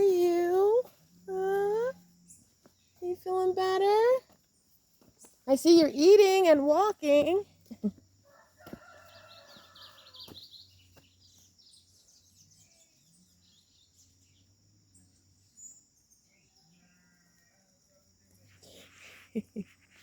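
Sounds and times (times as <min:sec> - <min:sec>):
faint birds chirping: 0:00.0 - 0:20.0
rooster crowing: 0:08.2 - 0:10.3.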